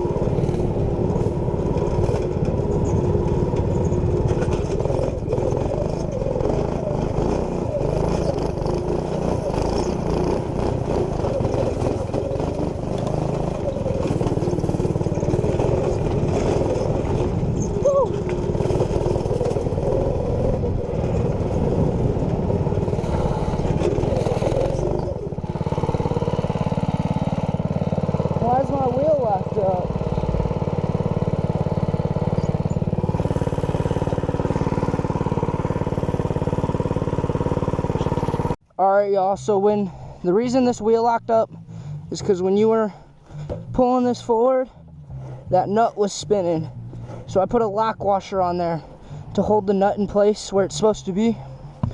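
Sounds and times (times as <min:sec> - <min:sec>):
minibike engine running: 0:00.0 - 0:51.9.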